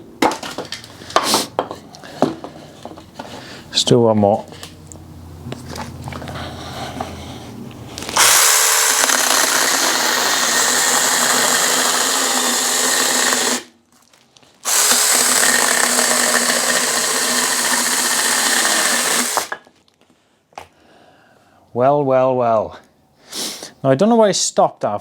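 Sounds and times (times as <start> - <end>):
electric chainsaw cutting log: 8.1 - 13.7, 14.6 - 19.6.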